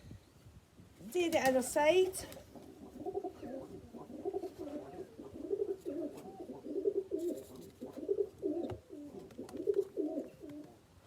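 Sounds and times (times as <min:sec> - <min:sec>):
pigeons cooing: 0:02.3 - 0:11.0.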